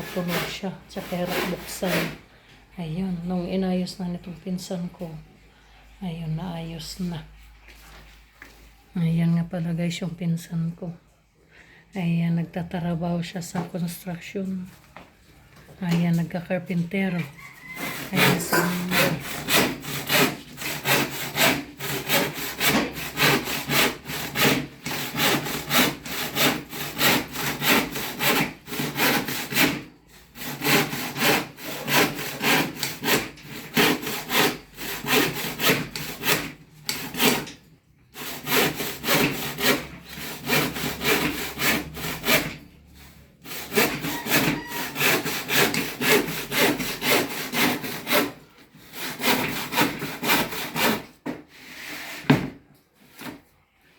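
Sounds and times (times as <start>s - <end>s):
hand saw cutting wood: 0.0s - 2.2s, 17.0s - 52.4s.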